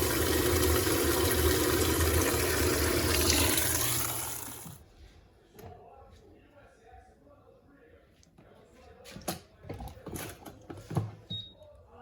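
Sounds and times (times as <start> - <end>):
washing machine running water: 0.0 - 4.8.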